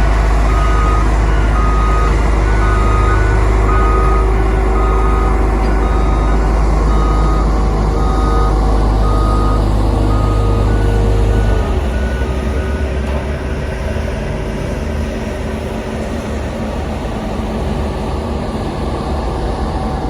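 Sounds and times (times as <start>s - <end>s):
diesel engine rumbling: 0.0s - 20.0s
reversing alarm beeping: 0.1s - 14.1s.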